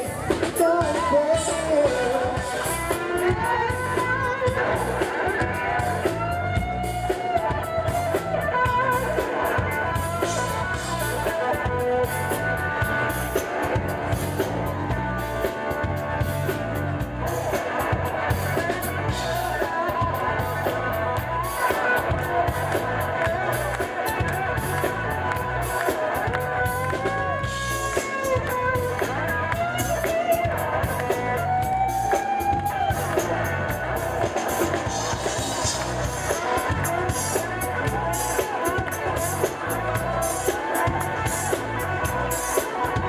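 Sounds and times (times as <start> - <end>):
bass: 0.0 - 43.0
drum kit beat: 0.0 - 43.0
electric guitar: 0.0 - 43.0.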